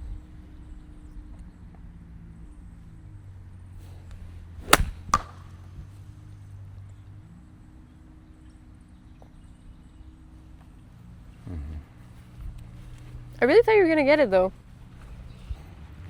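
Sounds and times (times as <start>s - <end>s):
golf club striking ball: 4.6s - 5.7s.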